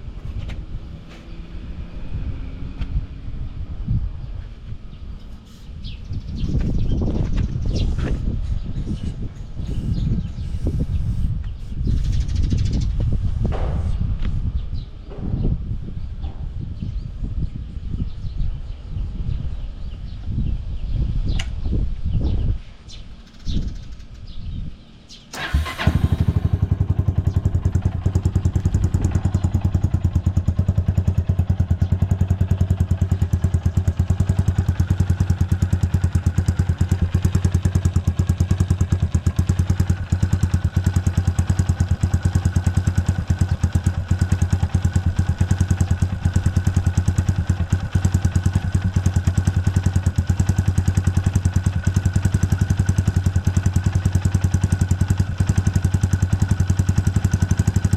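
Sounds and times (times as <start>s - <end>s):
motorcycle engine starting and idling: 23.2s - 24.4s, 25.1s - 57.9s.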